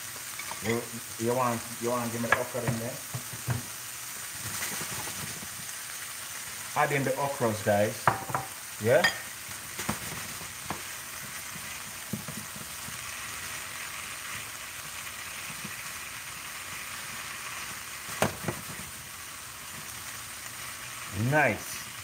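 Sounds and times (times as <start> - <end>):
food sizzling in a frying pan: 0.0 - 22.0
spatula stirring food: 9.1 - 21.0.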